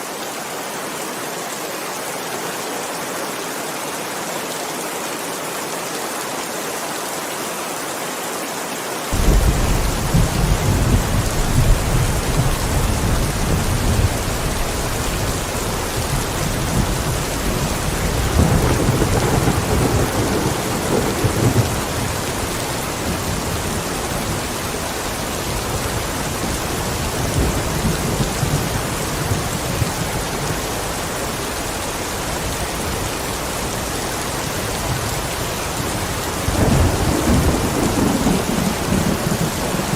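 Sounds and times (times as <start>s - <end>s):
heavy rain: 0.0s - 39.9s
rolling thunder: 9.2s - 30.1s, 36.5s - 39.9s.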